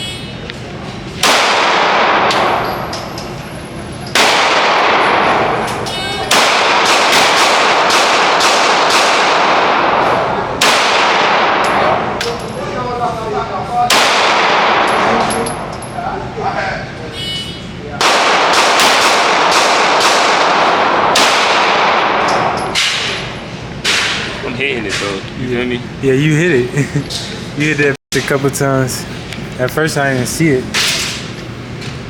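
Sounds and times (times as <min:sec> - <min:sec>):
echoing rifle shots: 0:01.2 - 0:02.6, 0:04.1 - 0:12.2, 0:13.9 - 0:15.3, 0:18.0 - 0:23.2
metallic ring of steel target: 0:22.1 - 0:24.3.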